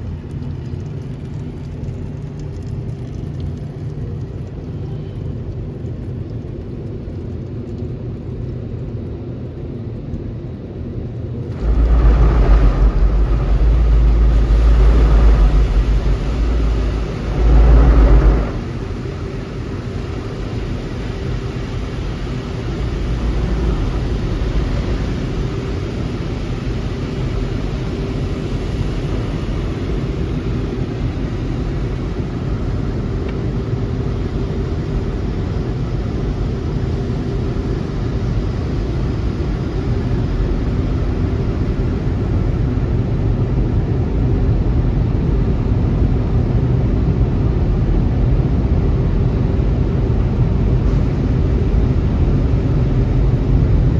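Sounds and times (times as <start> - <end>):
faint steady hum: 0.0 - 53.9
car wash machinery running: 11.1 - 53.9.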